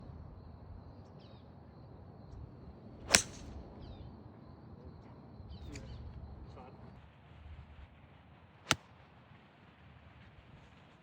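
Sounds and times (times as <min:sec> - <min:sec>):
golf club striking ball: 0:03.1 - 0:03.5.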